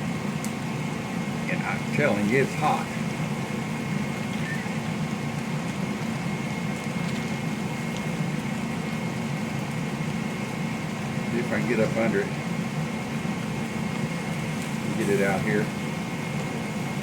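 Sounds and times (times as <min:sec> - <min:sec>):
kitchen appliance humming: 0:00.0 - 0:17.0
faint high whine: 0:04.2 - 0:04.9.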